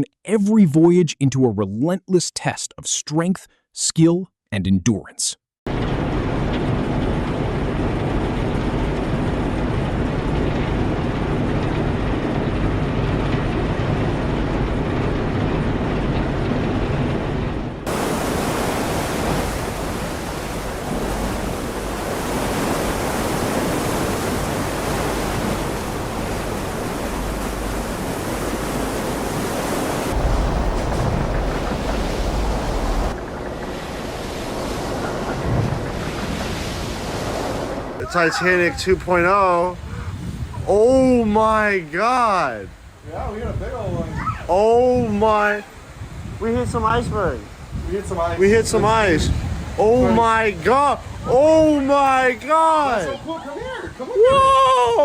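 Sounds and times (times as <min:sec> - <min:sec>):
low rumble: 0:05.7 - 0:38.0
wind buffeting microphone: 0:05.7 - 0:41.8, 0:42.5 - 0:55.0
rushing wind: 0:05.7 - 0:55.0
sea noise: 0:05.7 - 0:55.0.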